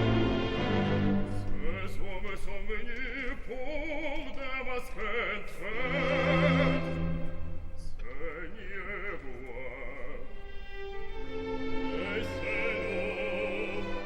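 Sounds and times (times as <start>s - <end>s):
orchestral accompaniment: 0.0s - 2.6s, 5.6s - 14.0s
operatic voice singing: 0.6s - 10.7s, 11.9s - 14.0s.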